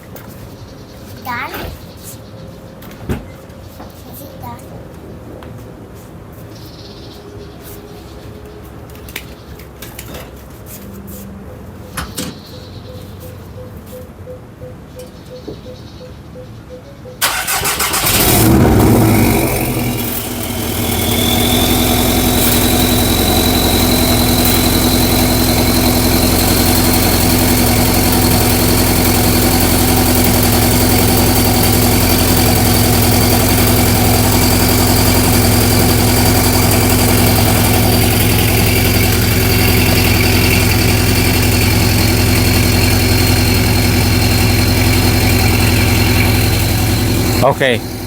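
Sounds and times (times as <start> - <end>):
car engine idling: 17.2 - 48.0.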